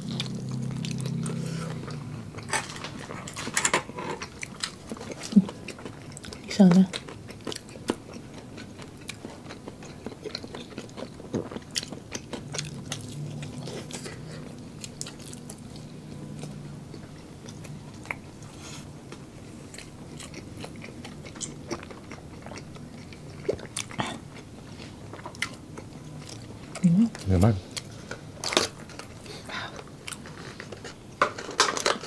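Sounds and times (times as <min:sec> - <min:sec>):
low hum: 0:00.0 - 0:05.5, 0:12.3 - 0:19.6
chewing crunchy food: 0:00.0 - 0:32.0.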